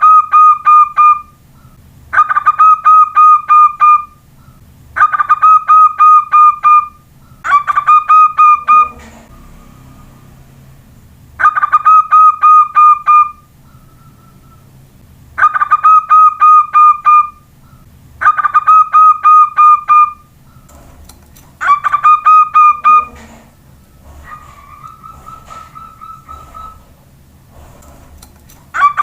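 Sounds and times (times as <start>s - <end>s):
dove cooing: 7.5s - 9.4s, 21.6s - 28.1s, 28.7s - 29.0s.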